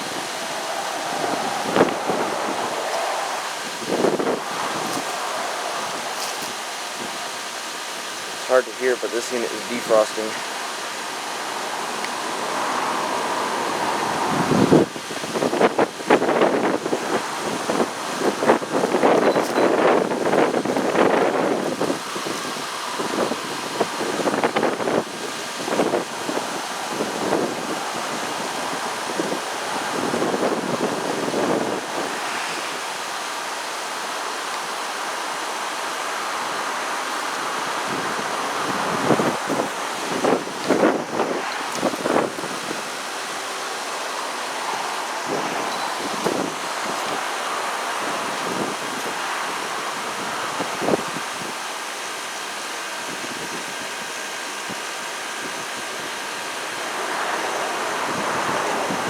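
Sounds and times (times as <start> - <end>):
wind buffeting microphone: 0.0 - 33.5, 36.0 - 51.7, 53.0 - 59.0
heat pump rushing hiss: 0.0 - 59.0.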